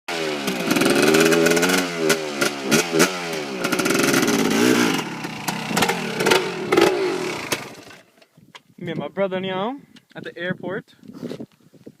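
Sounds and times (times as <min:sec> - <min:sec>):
dirt bike engines revving: 0:00.1 - 0:08.1.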